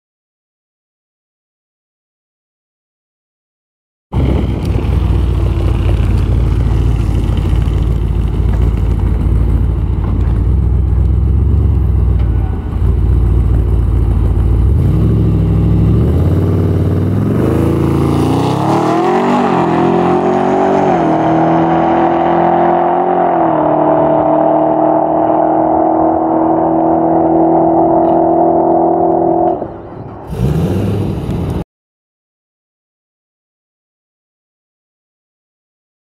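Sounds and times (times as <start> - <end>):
car engine rumbling and accelerating: 4.2 - 31.6.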